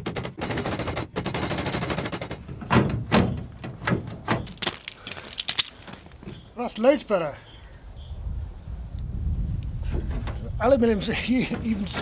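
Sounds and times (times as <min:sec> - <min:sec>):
fast rattle of knocks: 0:00.0 - 0:05.6.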